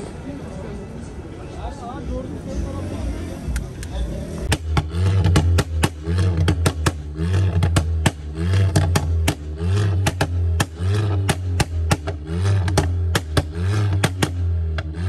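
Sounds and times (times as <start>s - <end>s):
car engine revving: 2.4s - 15.0s
exhaust pops and cracks: 4.5s - 14.9s.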